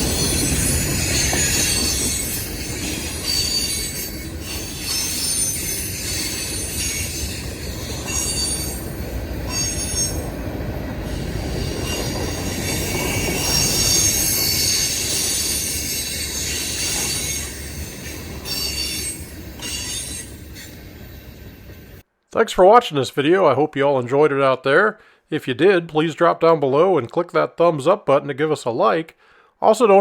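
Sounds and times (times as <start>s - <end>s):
freight train cars rumbling: 0.0s - 22.0s
train wheels squealing on rails: 0.0s - 22.0s.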